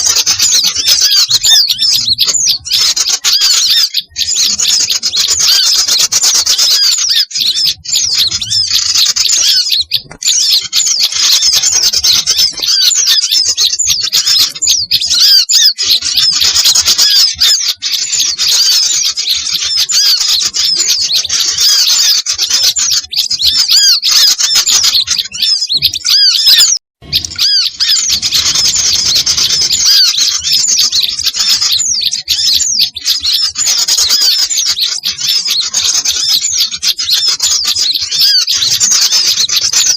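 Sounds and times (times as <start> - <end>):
songbirds chirping and squawking: 0.0 - 39.9.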